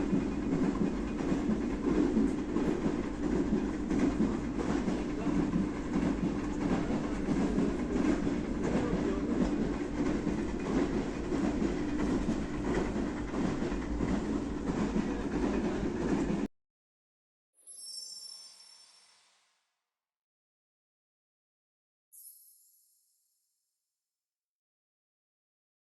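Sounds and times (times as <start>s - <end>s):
train wheels on rails clattering: 0.0s - 16.5s.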